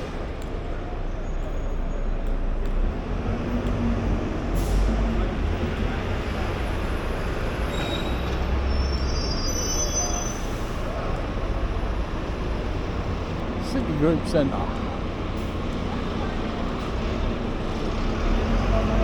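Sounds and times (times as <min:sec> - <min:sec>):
city traffic rumble: 0:00.0 - 0:19.0
brakes squealing and hissing: 0:04.3 - 0:19.0.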